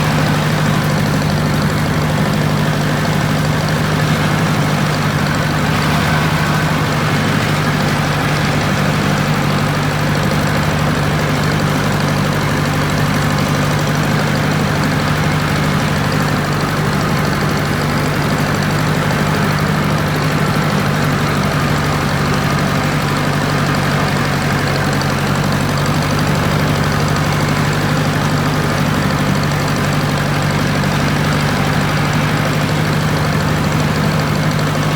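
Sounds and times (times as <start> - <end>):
tractor engine idling: 0.0 - 34.9.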